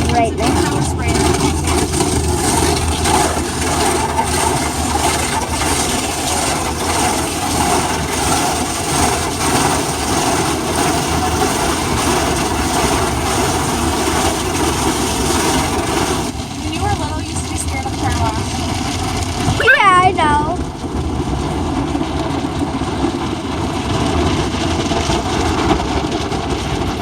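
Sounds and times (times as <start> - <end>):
car wash sprayers hissing: 0.0 - 18.4.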